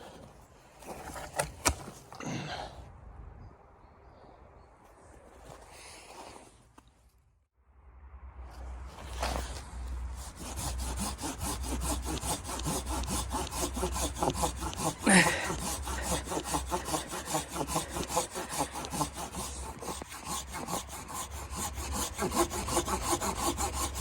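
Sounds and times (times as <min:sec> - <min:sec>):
hand saw cutting wood: 0:09.0 - 0:24.0.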